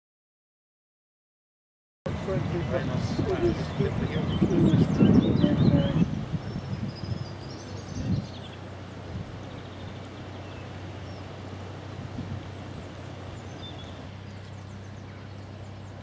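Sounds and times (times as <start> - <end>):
loud low-pitched rumble: 2.1 - 16.0
low outdoor background hum: 2.1 - 16.0
faint birdsong chirps and whistle: 3.3 - 16.0.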